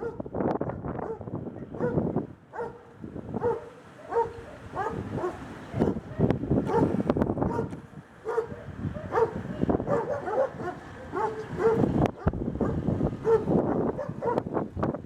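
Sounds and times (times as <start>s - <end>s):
dog barking: 0.0s - 0.2s, 1.0s - 2.8s, 3.4s - 6.9s, 7.5s - 14.4s
wind rumbling on microphone: 0.0s - 15.0s.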